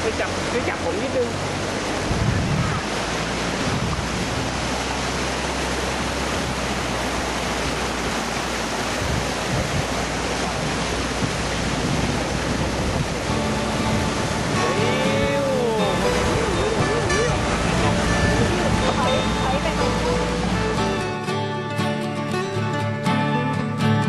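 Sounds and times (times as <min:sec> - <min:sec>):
stream rapids rushing: 0:00.0 - 0:23.3.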